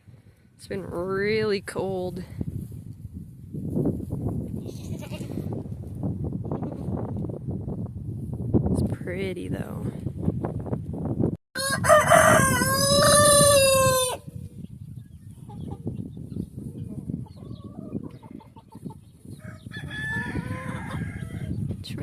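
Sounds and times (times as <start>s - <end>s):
rooster crowing: 11.6s - 14.2s, 19.4s - 21.6s.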